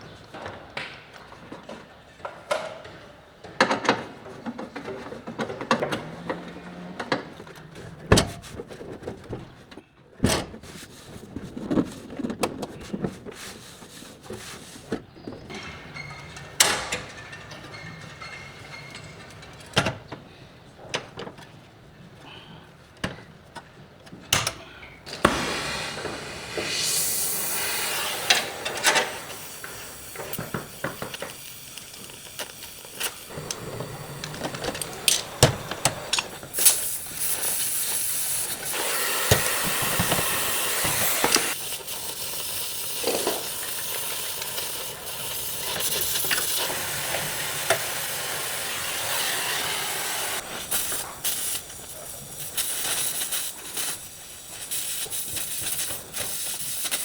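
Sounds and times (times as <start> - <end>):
hissing noise: 25.1 - 57.0.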